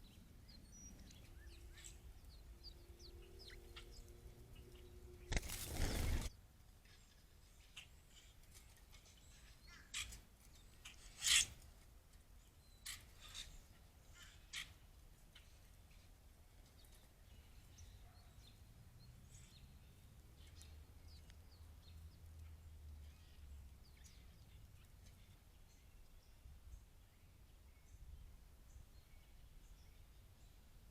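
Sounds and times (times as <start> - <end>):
birds calling: 0.0 - 6.4
rustling noise: 5.3 - 6.3.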